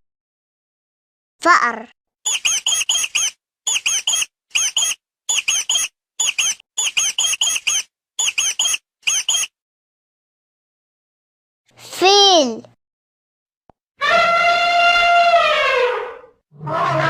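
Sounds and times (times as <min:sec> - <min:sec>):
mouse squeaking: 0:02.3 - 0:09.6.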